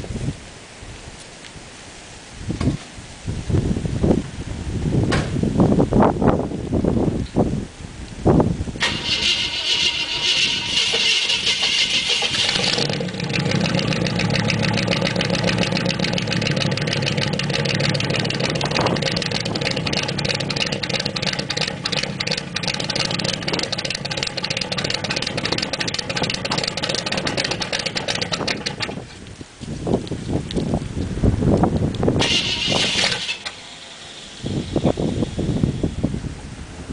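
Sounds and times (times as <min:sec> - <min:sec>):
engine cranking high-pitched: 0:08.8 - 0:29.1, 0:32.2 - 0:35.9
engine idling with exhaust pulse: 0:08.8 - 0:36.9.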